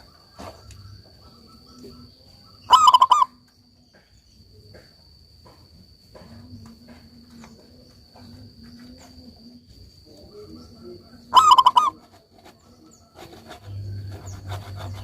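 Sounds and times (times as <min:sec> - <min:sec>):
dove cooing: 0:00.0 - 0:03.4, 0:07.3 - 0:15.0
high-pitched insect drone: 0:00.0 - 0:15.0.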